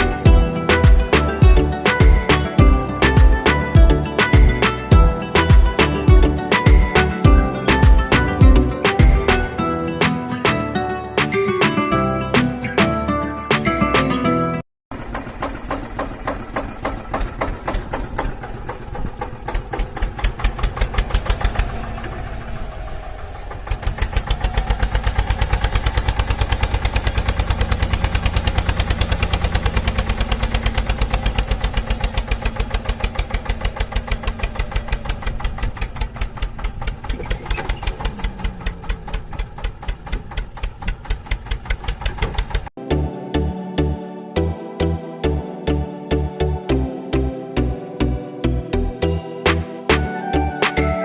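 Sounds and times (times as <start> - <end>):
engine running: 0.0 - 10.6, 14.9 - 42.8.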